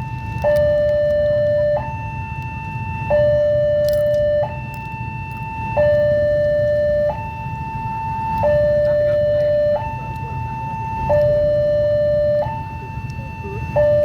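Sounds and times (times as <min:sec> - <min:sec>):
two-tone crossing alarm: 0:00.0 - 0:14.0.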